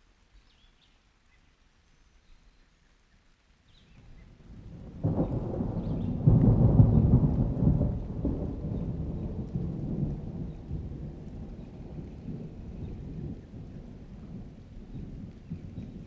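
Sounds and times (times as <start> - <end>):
steady rain: 0.0 - 16.0
thunder rumbling: 4.4 - 16.0.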